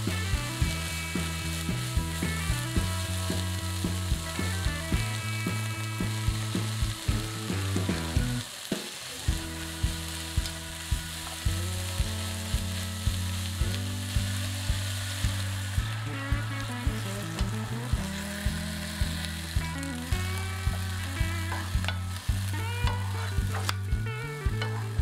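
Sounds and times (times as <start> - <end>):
background music with steady beat: 0.0 - 8.5, 9.3 - 25.0
food sizzling in a wok: 0.0 - 25.0
wooden spatula turning food: 6.5 - 25.0.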